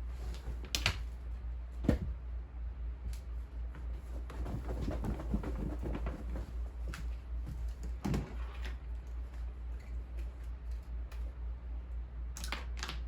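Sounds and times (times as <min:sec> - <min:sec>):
steady low hum: 0:00.0 - 0:12.8
knocks and rustles of handling: 0:03.2 - 0:11.3.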